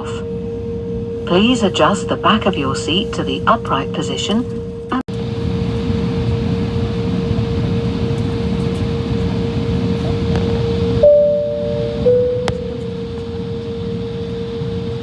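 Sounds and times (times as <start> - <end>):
airliner cabin engine hum: 0.0 - 15.0.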